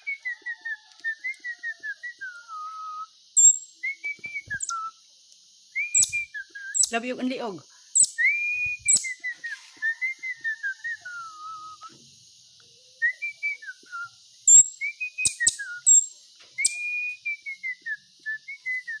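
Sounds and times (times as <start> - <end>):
bird whistling: 0.0 - 4.9, 5.8 - 7.2, 8.0 - 11.9, 13.0 - 19.0
high bird chip notes: 3.4 - 3.8, 6.0 - 6.2, 6.8 - 7.3, 14.5 - 16.8.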